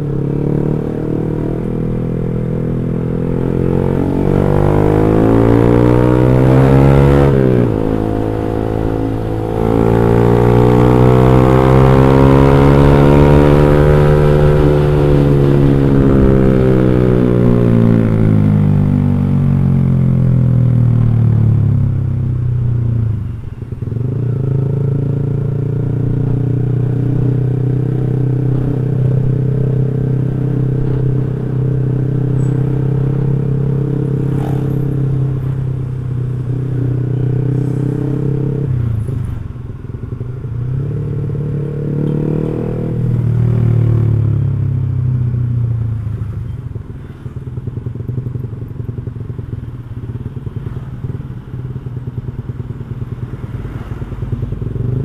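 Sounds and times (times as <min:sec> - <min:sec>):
motorcycle racing exhaust note: 0:00.0 - 0:19.7, 0:23.9 - 0:39.1.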